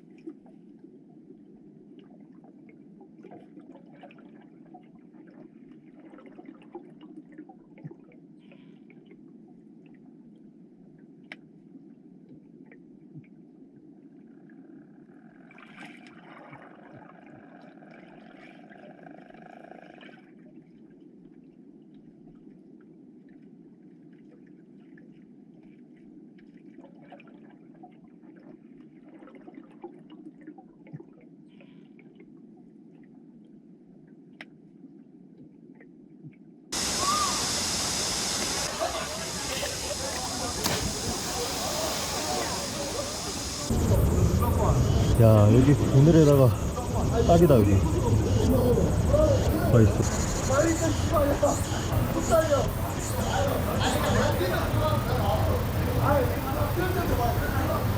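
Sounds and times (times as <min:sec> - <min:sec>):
distant voices calling: 0:36.8 - 0:57.9
stream water rushing: 0:36.8 - 0:57.9.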